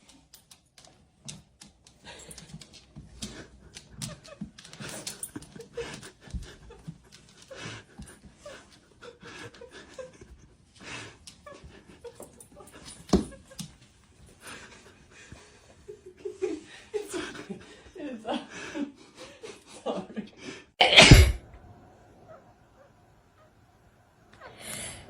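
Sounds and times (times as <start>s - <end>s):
dog panting: 2.0s - 12.1s
sharp thump: 20.8s - 21.4s.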